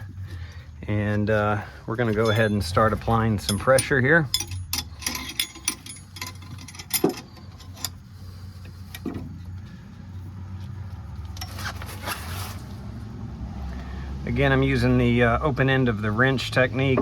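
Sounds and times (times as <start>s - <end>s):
wrench metal clicks: 2.2s - 8.0s
metal scraping rasp: 2.2s - 9.1s.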